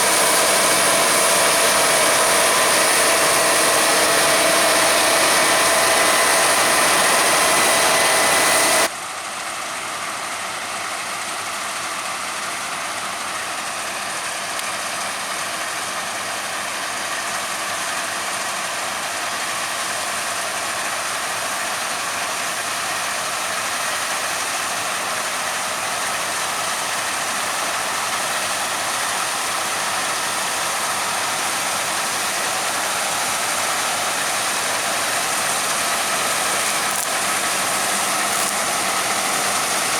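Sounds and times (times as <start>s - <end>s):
loud engine humming: 0.0s - 39.9s
mechanical whirr and rattle: 30.9s - 39.9s.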